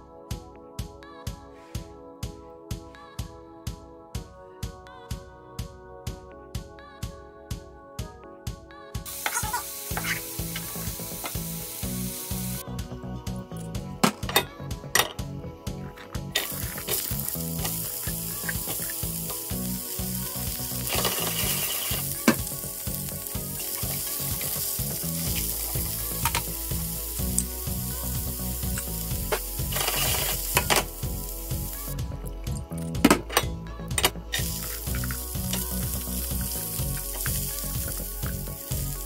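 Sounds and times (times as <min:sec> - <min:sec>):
food sizzling in hot oil: 0:09.1 - 0:12.6, 0:16.4 - 0:32.0, 0:34.4 - 0:39.0.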